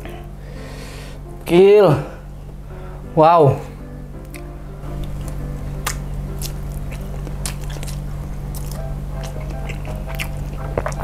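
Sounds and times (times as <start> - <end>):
background music: 0.0 - 11.0
slurping and chewing: 5.0 - 11.0.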